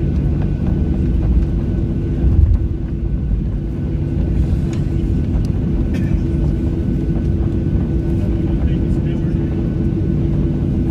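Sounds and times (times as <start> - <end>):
airplane cabin engine rumble: 0.0 - 10.9
constant hum: 0.0 - 10.9.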